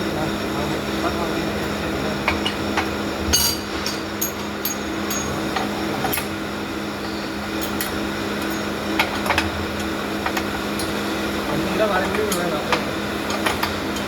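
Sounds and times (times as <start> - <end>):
workshop machinery humming: 0.0 - 14.0.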